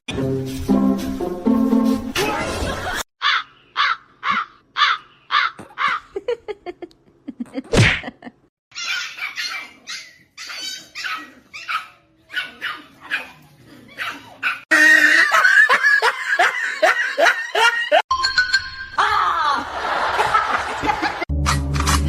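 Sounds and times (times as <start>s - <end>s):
dog barking and yipping: 8.7s - 14.7s.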